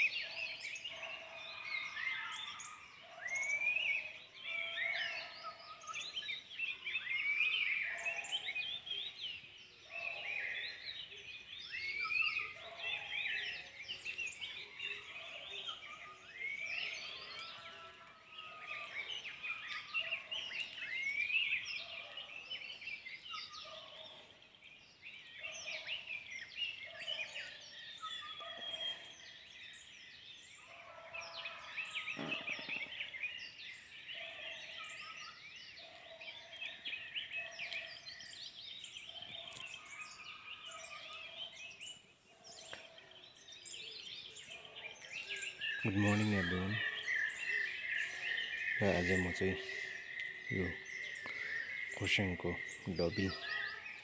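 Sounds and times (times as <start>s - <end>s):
forest birds chirping: 0.0s - 54.0s
low bird call: 30.6s - 33.3s.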